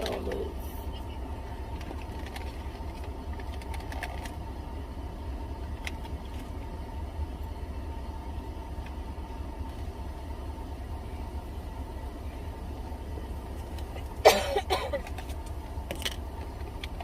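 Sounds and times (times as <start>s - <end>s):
faint steady hum: 0.0s - 17.0s
motor running low rumble: 0.0s - 17.0s.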